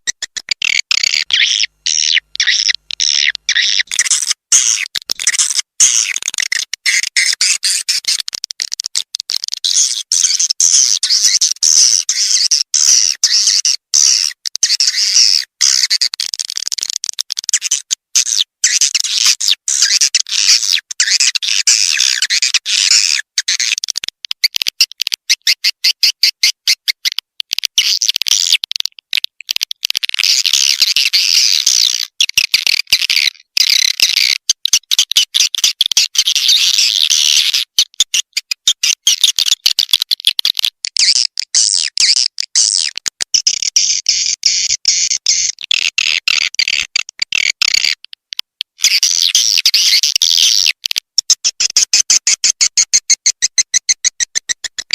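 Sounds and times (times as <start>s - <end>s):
rapid clicks: 0.0s - 1.3s
swiftlets twittering and chirping: 0.0s - 8.2s, 9.6s - 16.9s, 17.5s - 23.8s.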